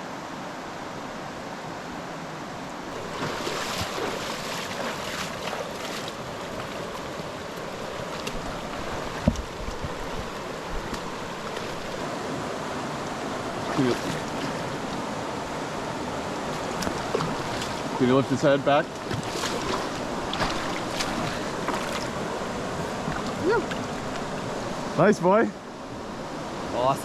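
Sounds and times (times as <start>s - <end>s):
river water rushing: 0.0s - 27.0s
water splashing: 2.9s - 12.1s, 13.4s - 15.1s, 16.3s - 24.6s.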